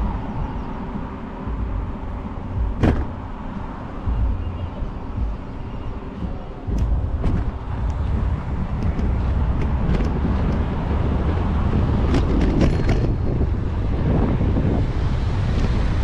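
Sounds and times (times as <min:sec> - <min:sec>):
wind buffeting microphone: 0:00.0 - 0:16.0
sharp clicks and rattles: 0:06.2 - 0:10.8.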